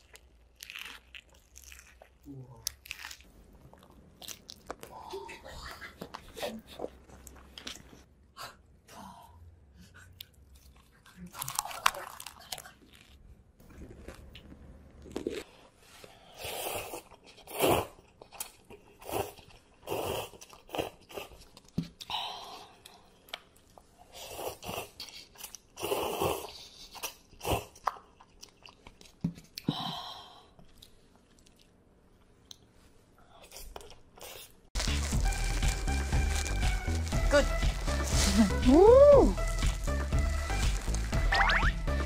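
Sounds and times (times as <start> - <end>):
crunching and chewing food: 0.0 - 5.2, 10.2 - 15.6, 24.5 - 29.7, 30.6 - 32.7, 33.4 - 38.7, 39.3 - 41.4
music: 34.8 - 42.0.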